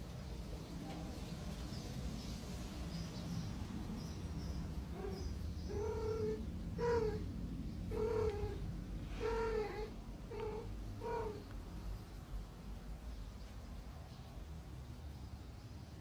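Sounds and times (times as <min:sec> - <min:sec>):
cat meowing: 0:05.0 - 0:07.3, 0:07.9 - 0:11.5.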